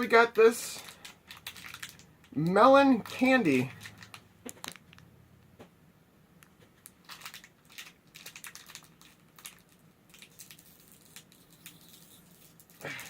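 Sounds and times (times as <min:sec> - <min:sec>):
plastic wrapper crinkling: 0:00.7 - 0:05.1, 0:06.8 - 0:13.0.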